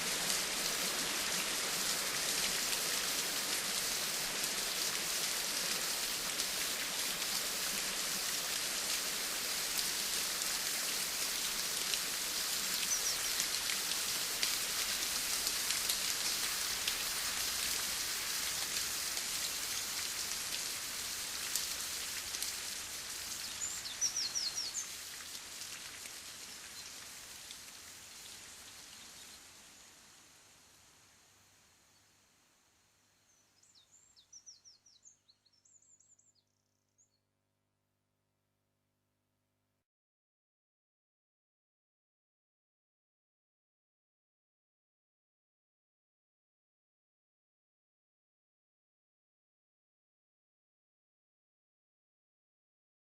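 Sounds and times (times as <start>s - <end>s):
rain falling: 0.0s - 32.2s.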